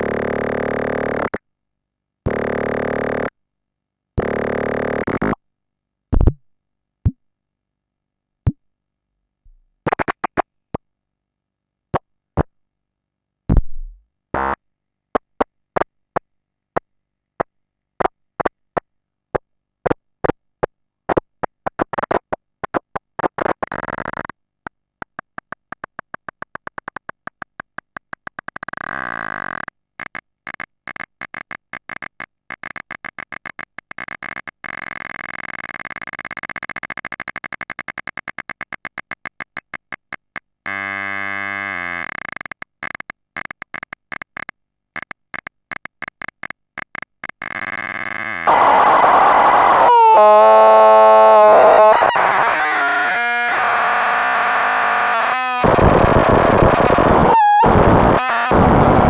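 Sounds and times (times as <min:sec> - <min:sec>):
synthesizer clicks and blips: 0:42.2 - 0:59.0.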